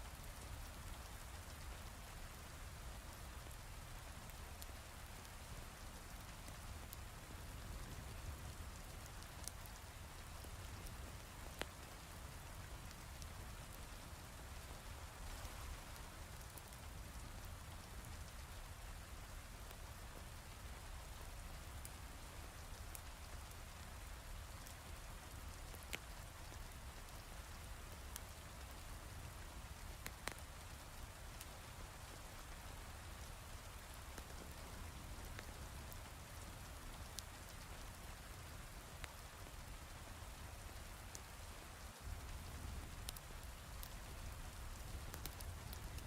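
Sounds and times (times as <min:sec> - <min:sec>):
wood fire crackling pops: 0:29.8 - 0:30.5, 0:33.8 - 0:35.6, 0:42.0 - 0:46.0.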